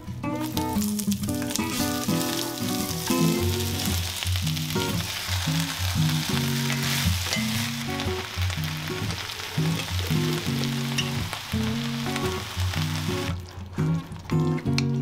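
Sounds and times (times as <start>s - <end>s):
background music: 0.0s - 15.0s
vegetables sizzling in hot oil: 0.4s - 14.4s.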